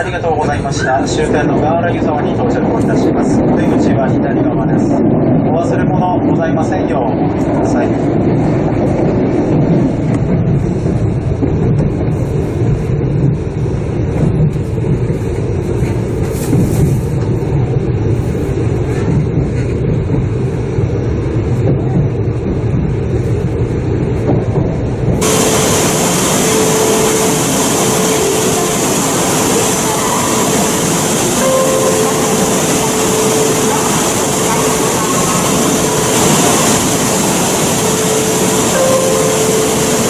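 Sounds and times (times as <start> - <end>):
train rumbling inside passenger car: 0.0 - 40.0
bright even hiss: 25.2 - 40.0.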